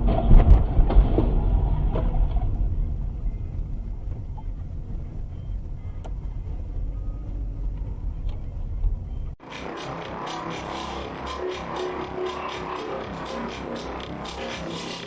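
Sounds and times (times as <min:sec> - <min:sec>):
car driving rumble: 0:00.0 - 0:15.0
electronic music: 0:09.4 - 0:15.0.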